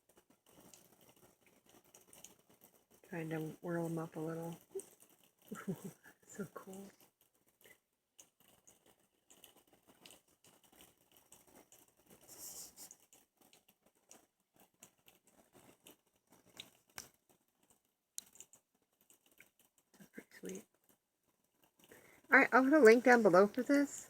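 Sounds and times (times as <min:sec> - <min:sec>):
soft hiss: 0:03.0 - 0:07.0, 0:11.5 - 0:13.0.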